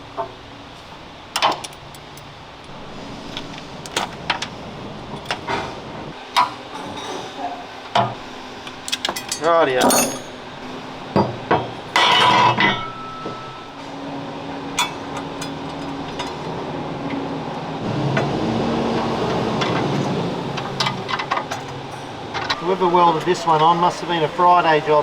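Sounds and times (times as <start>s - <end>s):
steady low hum: 0.0s - 25.0s
metal clatter ringing: 8.9s - 14.1s, 14.7s - 16.6s.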